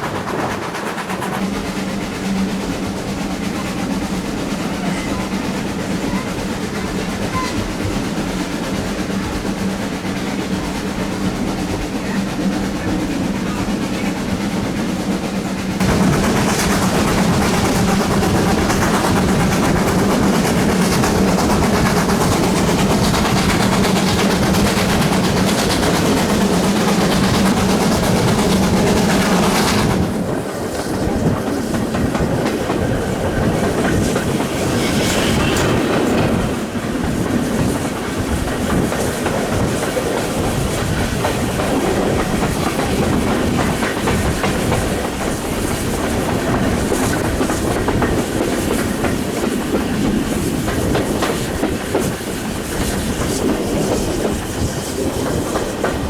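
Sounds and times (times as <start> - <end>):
steam train running: 0.0 - 56.0
wheels clattering over rail joints: 15.7 - 56.0.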